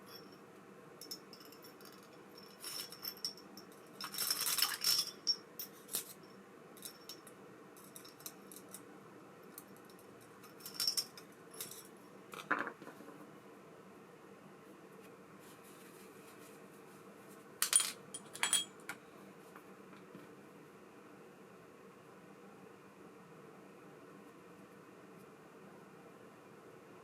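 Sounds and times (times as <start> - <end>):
small metal parts clinking: 1.0 - 6.2, 10.5 - 12.6, 17.6 - 18.7.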